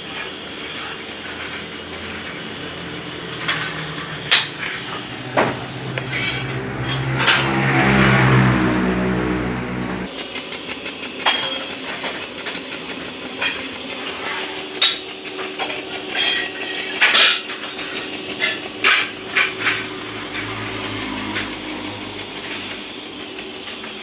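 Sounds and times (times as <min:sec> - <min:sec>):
workshop hum: 0:00.0 - 0:24.0
metal pipe parts clinking: 0:14.7 - 0:19.8.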